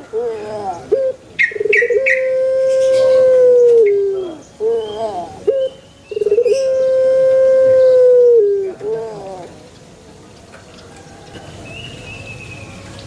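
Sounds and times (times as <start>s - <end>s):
dove cooing: 0.0s - 9.6s.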